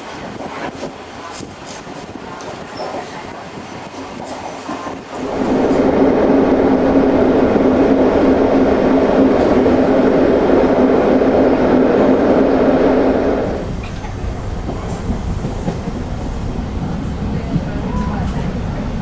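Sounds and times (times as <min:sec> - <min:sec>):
train rolling on track: 0:00.0 - 0:19.0.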